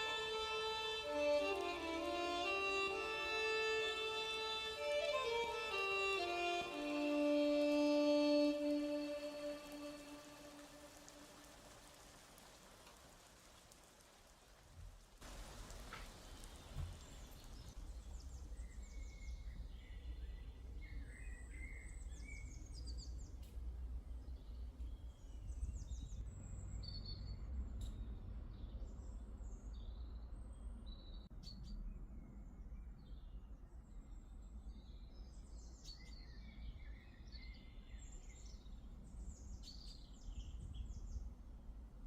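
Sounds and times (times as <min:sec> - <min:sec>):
small birds chirping: 0:15.3 - 0:41.4.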